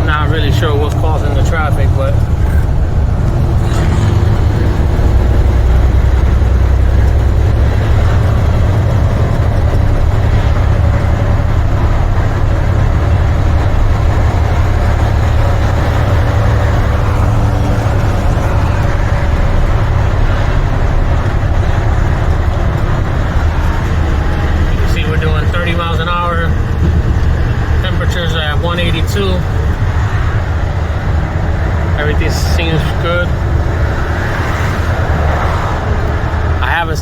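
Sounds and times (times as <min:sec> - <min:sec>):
diesel engine drone in cab: 0:00.0 - 0:37.0.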